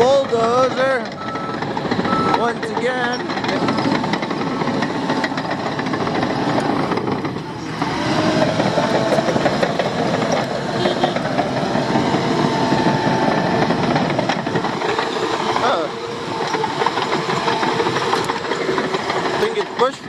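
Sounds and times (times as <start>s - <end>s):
crawler tracks clanking: 0.0s - 20.0s
diesel engine under load: 0.0s - 20.0s.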